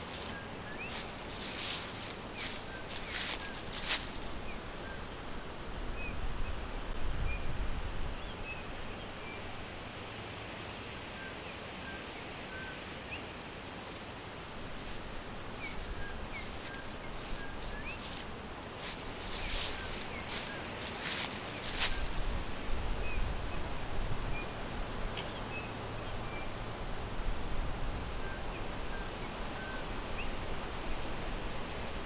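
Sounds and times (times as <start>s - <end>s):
birds chirping: 0.0s - 4.7s, 15.5s - 22.3s
forest ambience hiss: 0.0s - 7.0s, 7.9s - 32.0s.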